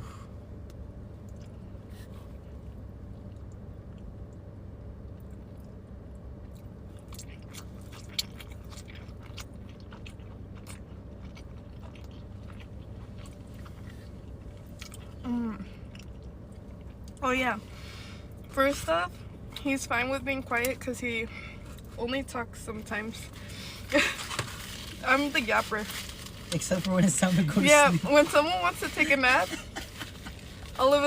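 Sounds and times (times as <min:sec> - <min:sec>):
steady low hum: 0:00.0 - 0:31.0
people chewing food: 0:05.0 - 0:17.2.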